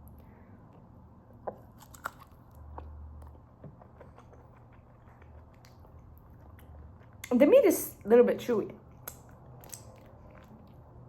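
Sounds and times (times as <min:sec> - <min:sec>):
person chewing meat: 0:00.6 - 0:07.3.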